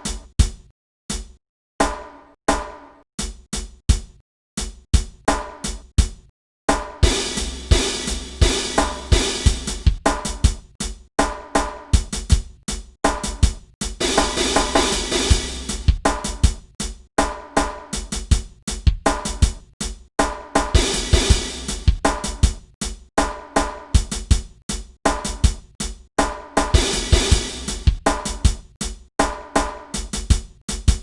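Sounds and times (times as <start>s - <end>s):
drum kit hip-hop groove: 0.0s - 31.0s
cymbal wash: 7.1s - 9.8s.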